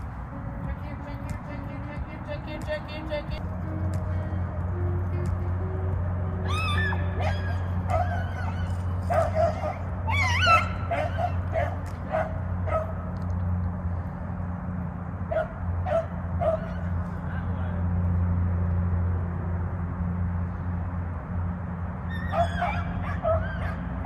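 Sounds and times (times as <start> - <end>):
beagles baying: 3.6 - 13.0, 22.1 - 24.0
dogs yipping: 6.4 - 13.1, 15.3 - 17.0, 22.1 - 24.0.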